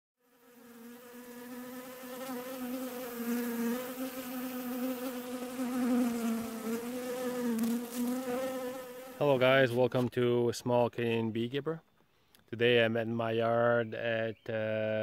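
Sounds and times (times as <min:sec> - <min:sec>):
honeybee buzzing: 0:00.2 - 0:09.4.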